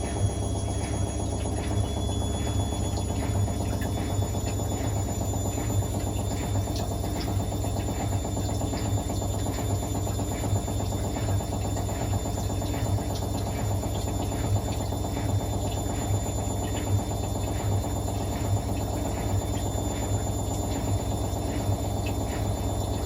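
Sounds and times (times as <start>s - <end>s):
washing machine motor hum: 0.0s - 23.0s.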